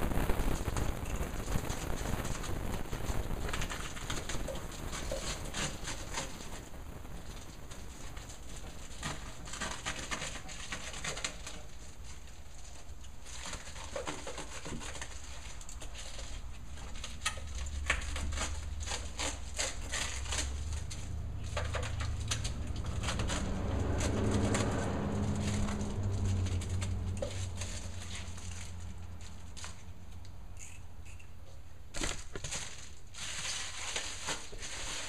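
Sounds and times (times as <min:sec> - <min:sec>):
bubble-wrap insulation crinkling: 0:00.0 - 0:30.8, 0:31.9 - 0:35.0
low hum: 0:20.5 - 0:31.2.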